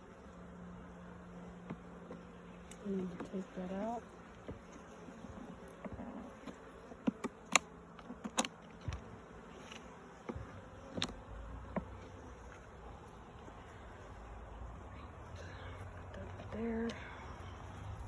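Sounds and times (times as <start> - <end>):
bees buzzing: 0.0 - 18.0
hive parts clicking and knocking: 4.4 - 12.6.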